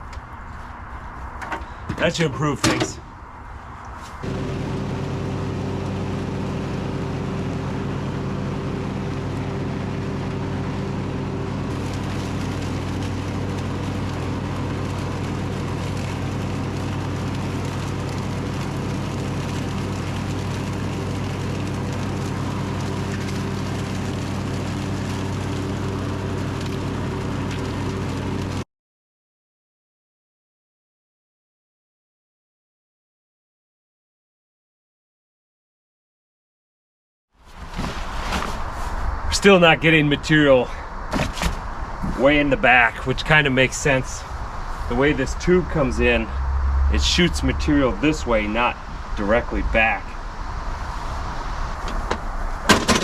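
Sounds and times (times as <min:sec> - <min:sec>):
lawn tractor engine running: 0:04.2 - 0:28.6.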